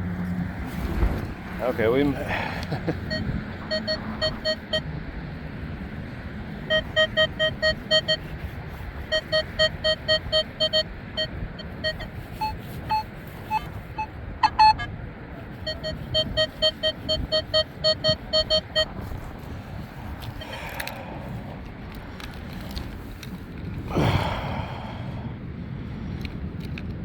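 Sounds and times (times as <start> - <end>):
wind rumble on microphone: 0.0 - 27.0
metal detector beeping: 3.0 - 4.9, 6.6 - 8.4, 9.0 - 14.9, 15.6 - 19.2.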